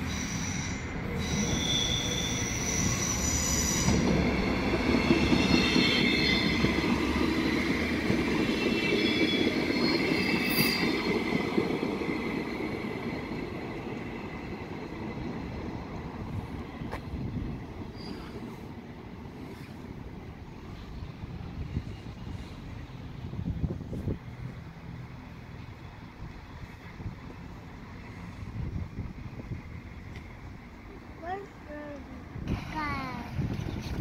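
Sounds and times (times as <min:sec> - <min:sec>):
wheels squealing on rails: 0:00.0 - 0:23.1
train running gear rumble: 0:00.0 - 0:34.0.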